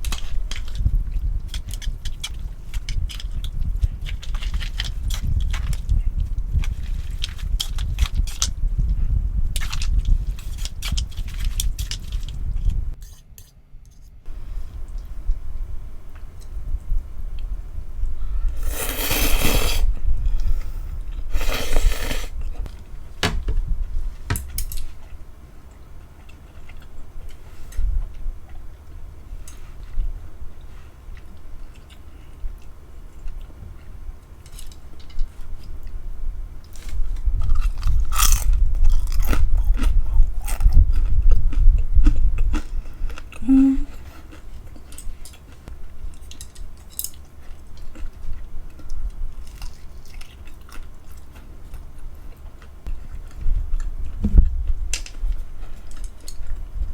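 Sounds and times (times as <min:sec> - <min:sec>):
chewing with wet clicks: 0:00.0 - 0:12.7, 0:24.6 - 0:36.0, 0:36.6 - 0:56.9
crunchy bites: 0:37.5 - 0:41.2.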